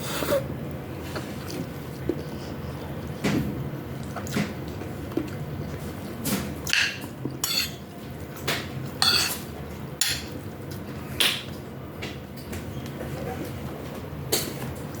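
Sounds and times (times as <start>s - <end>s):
metal spoon clinking against bowl: 7.4s - 7.8s, 9.0s - 9.4s.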